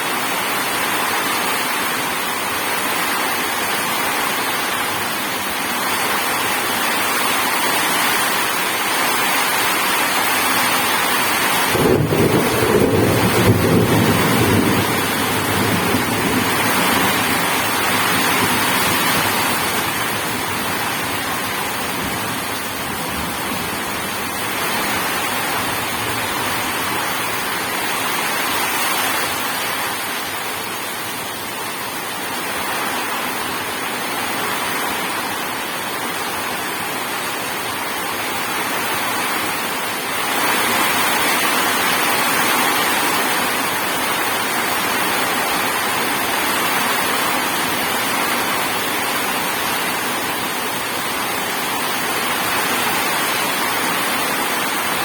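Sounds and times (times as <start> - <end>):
heavy rain: 0.0 - 55.0
low thunder rumble: 11.7 - 27.6.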